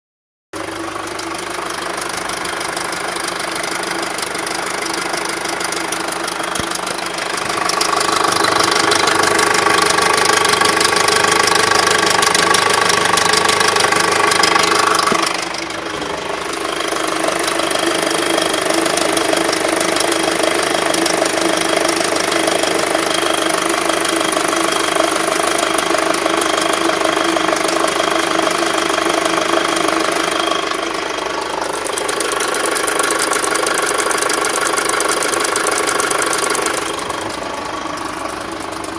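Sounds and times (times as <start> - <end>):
car engine idling with tapping: 0.6 - 38.9
engine whine: 2.7 - 38.9.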